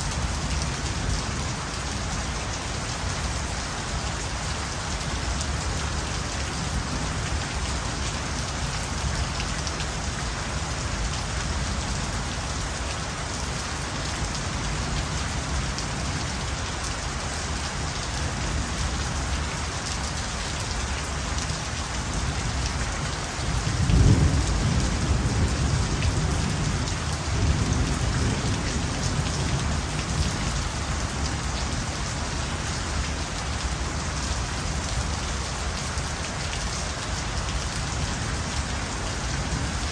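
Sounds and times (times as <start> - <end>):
rain falling: 0.0 - 39.9
thunder rumbling: 23.6 - 30.6.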